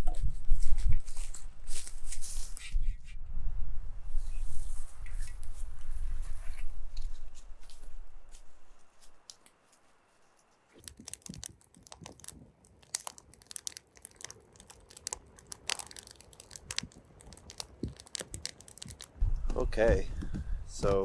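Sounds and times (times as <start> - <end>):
campfire crackling and popping: 10.8 - 19.2.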